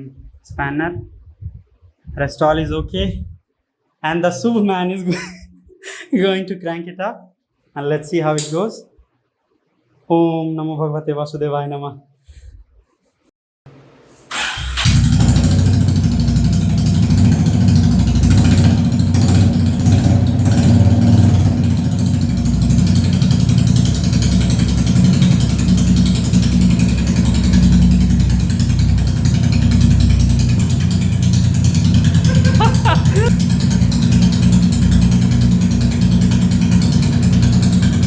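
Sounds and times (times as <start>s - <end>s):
motorcycle engine starting and running: 14.3s - 38.0s.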